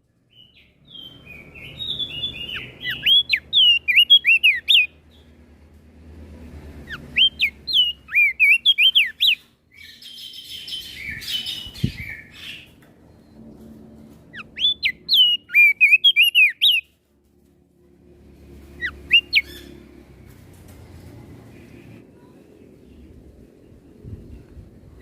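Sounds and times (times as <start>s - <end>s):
bird whistling song: 0.3s - 5.0s, 6.9s - 12.8s, 14.3s - 16.9s, 18.8s - 19.8s
bird harsh chattering: 1.7s - 4.9s, 6.9s - 9.4s, 18.8s - 19.8s.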